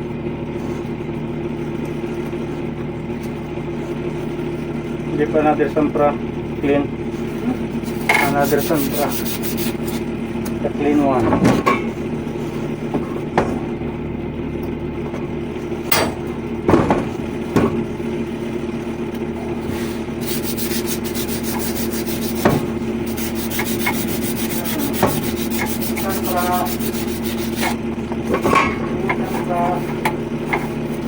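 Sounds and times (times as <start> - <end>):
steady machine hum: 0.0 - 31.0
sandpaper rubbing on metal pipe: 7.8 - 10.1, 19.8 - 27.8, 29.0 - 31.0.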